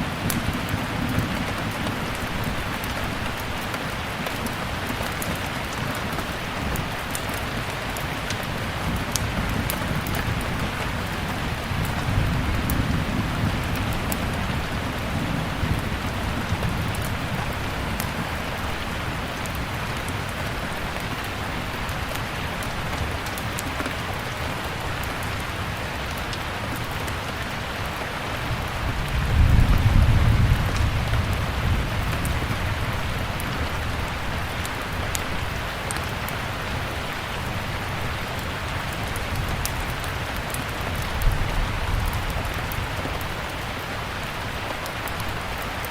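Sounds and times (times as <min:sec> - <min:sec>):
steady rain: 0:00.0 - 0:45.9
wood fire crackles: 0:00.0 - 0:45.9
thunder rumble: 0:08.6 - 0:19.6, 0:28.5 - 0:35.7, 0:38.9 - 0:43.5.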